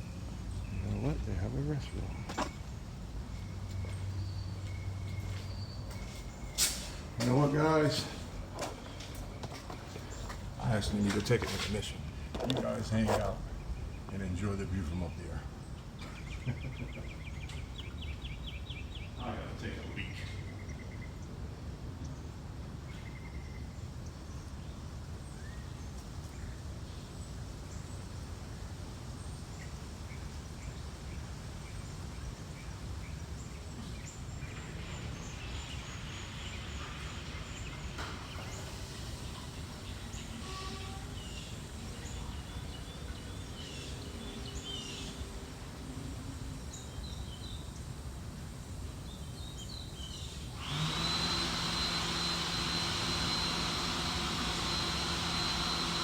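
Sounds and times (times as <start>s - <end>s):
bird chirps: 0.5s - 7.3s
electric hand dryer running: 38.0s - 40.7s, 50.5s - 56.0s.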